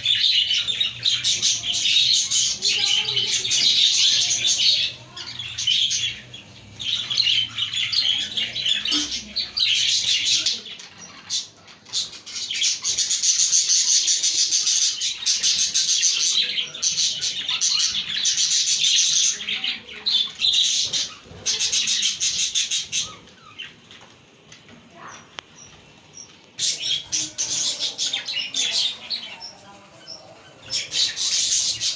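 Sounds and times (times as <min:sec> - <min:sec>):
budgerigars chirping and warbling: 0:00.0 - 0:31.9.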